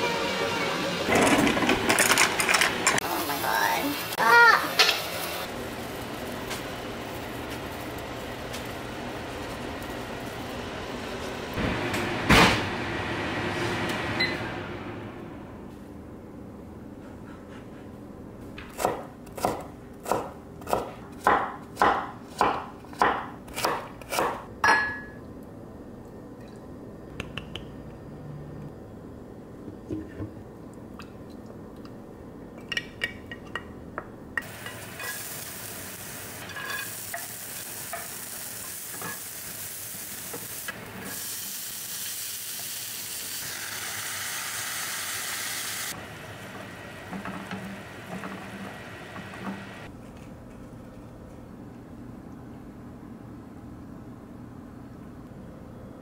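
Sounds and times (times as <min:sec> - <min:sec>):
carrots sizzling in a frying pan: 0:34.4 - 0:49.8.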